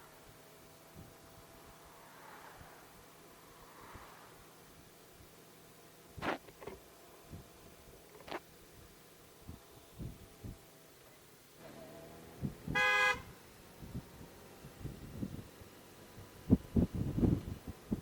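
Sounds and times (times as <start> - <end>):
vehicle horn toot: 12.7 - 13.3.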